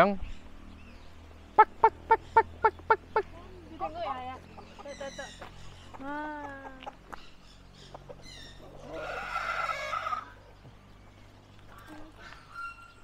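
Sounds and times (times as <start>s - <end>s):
fowl calling: 1.6s - 3.3s, 7.9s - 10.4s
fowl harsh squawk: 8.8s - 10.4s.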